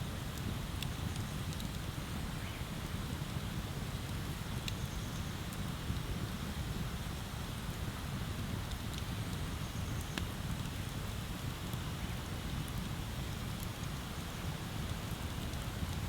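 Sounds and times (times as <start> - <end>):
bonfire crackling and rushing: 0.0 - 16.0.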